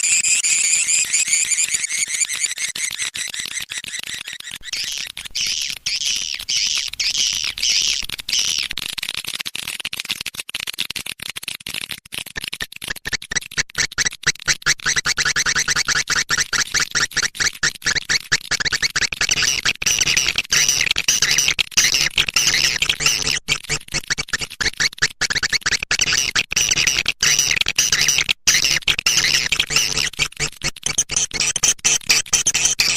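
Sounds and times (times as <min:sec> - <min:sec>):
recorded bird chirps: 0:00.0 - 0:08.8
rapid chirping clicks: 0:00.0 - 0:32.9.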